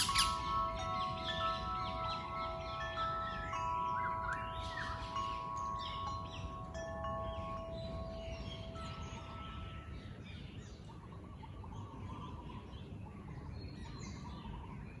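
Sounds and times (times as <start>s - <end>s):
wind chime tone: 0.0s - 10.9s
birds chirping and warbling: 0.0s - 15.0s.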